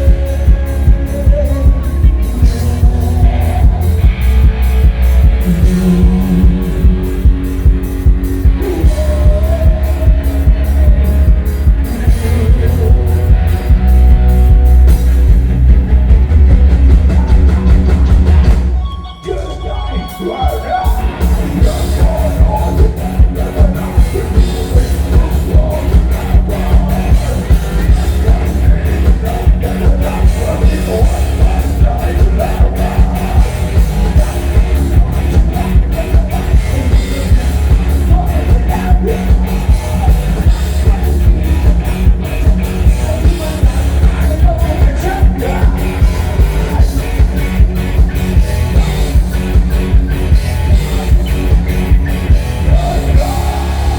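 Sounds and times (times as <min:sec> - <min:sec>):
person singing: 0:00.0 - 0:15.0, 0:18.8 - 0:49.6, 0:50.4 - 0:53.9
live rock band playing: 0:00.0 - 0:53.9
crowd yelling along: 0:16.7 - 0:53.9.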